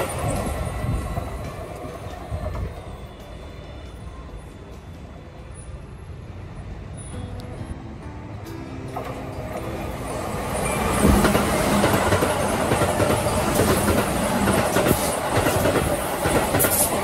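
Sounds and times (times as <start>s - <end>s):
electric train rumbling past: 0.0s - 17.0s
wheels clacking over rail joints: 8.9s - 17.0s.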